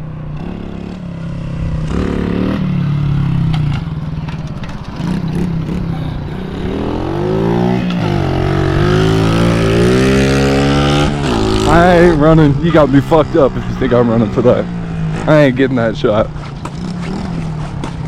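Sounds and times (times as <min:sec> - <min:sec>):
mini bike engine accelerating: 0:00.3 - 0:12.2, 0:16.3 - 0:18.0.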